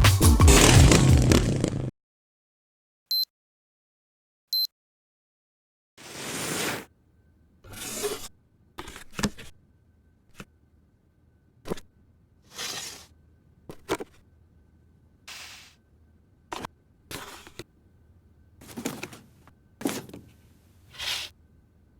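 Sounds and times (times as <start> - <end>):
faint high hum: 9.5 - 21.9
rustles and scrapes of handling: 12.5 - 13.1, 16.5 - 17.7, 18.6 - 21.4.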